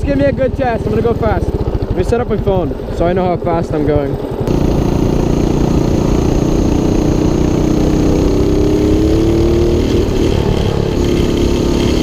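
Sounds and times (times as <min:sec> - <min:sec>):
mini bike engine accelerating: 0:04.0 - 0:12.0.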